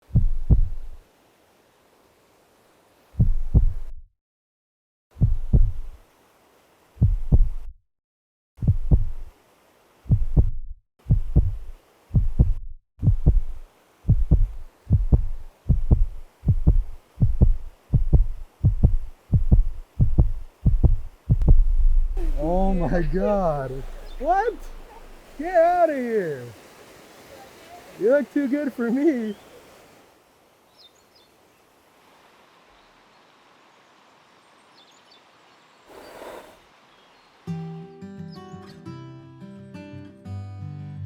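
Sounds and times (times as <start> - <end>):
heartbeat thumps: 0.0 - 0.9, 3.2 - 4.0, 5.2 - 6.0, 7.0 - 7.7, 8.6 - 9.3, 10.1 - 25.4.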